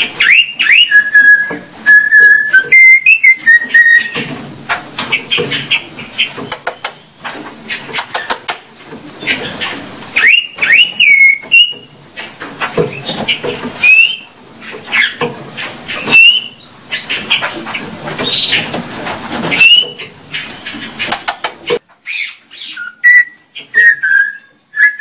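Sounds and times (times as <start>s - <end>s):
pet bird chirping and whistling: 0.2s - 4.3s, 10.2s - 11.9s, 13.8s - 14.3s, 15.9s - 17.1s, 19.5s - 20.7s, 22.1s - 25.0s.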